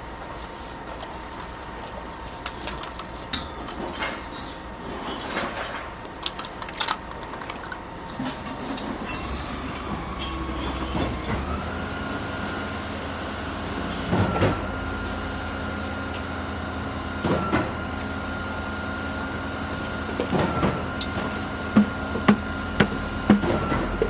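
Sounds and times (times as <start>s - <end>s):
engine-driven machinery running: 0.0s - 24.0s
heavy knock: 21.8s - 24.0s.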